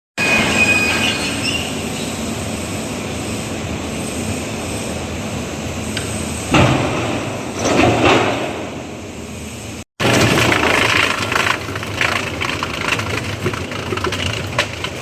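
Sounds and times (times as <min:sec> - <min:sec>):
sudden wood chipper bursts: 0:10.0 - 0:15.0
wood chipper running: 0:10.0 - 0:15.0.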